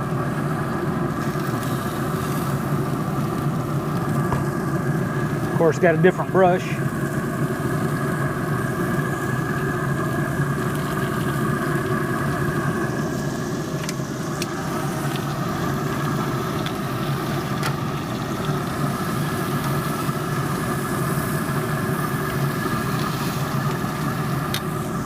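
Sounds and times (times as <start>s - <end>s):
motor drone with low hum: 0.0s - 25.0s.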